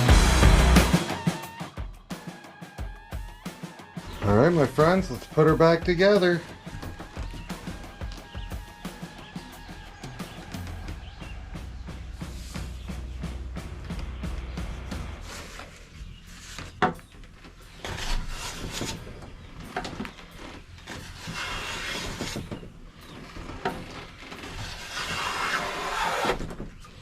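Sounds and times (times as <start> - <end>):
hand plane hissing strokes on wood: 15.1 - 16.8, 17.7 - 19.1, 20.9 - 23.2, 24.4 - 26.5.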